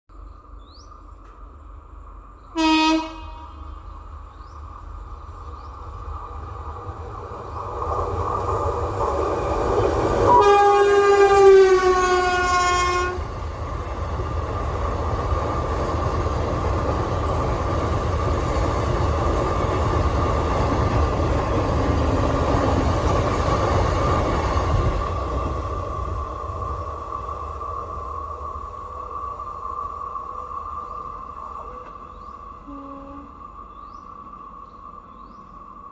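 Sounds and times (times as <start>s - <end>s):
train rumbling on rails: 0.1s - 35.9s
train horn blasts: 2.5s - 3.9s, 10.3s - 13.3s, 32.6s - 33.4s.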